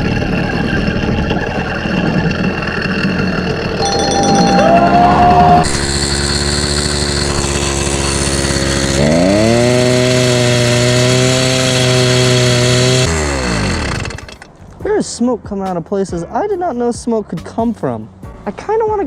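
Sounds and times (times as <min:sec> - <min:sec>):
small motorbike engine running: 0:00.0 - 0:14.5.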